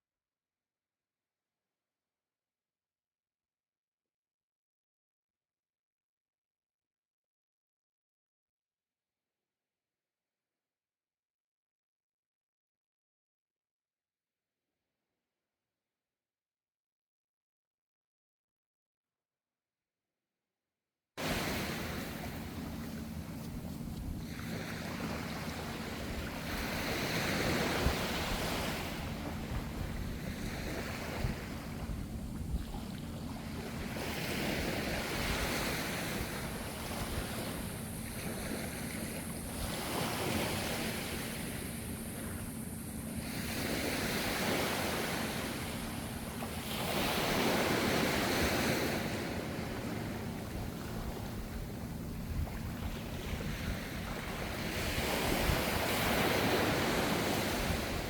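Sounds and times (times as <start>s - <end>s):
ocean waves washing onto shore: 21.2s - 58.0s
wind on microphone: 21.2s - 58.0s.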